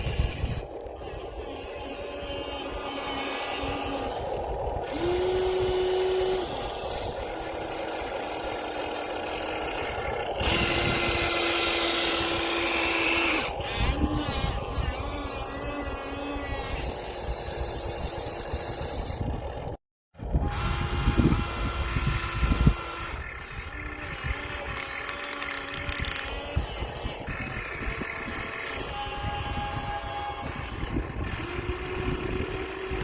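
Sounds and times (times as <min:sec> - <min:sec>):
gritty scraping: 0:00.0 - 0:19.3
small electric motors whining: 0:00.0 - 0:33.0.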